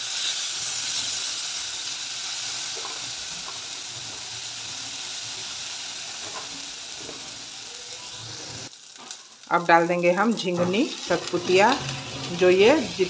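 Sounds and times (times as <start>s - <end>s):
paste sizzling in oil: 0.0s - 13.0s
spatula scraping: 10.4s - 13.0s.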